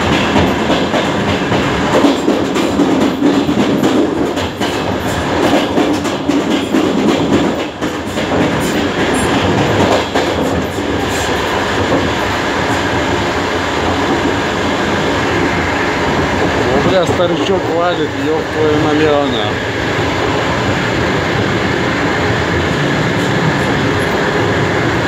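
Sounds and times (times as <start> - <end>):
wheels clacking over rail joints: 0.0 - 12.8
train running gear rumble: 0.0 - 25.0.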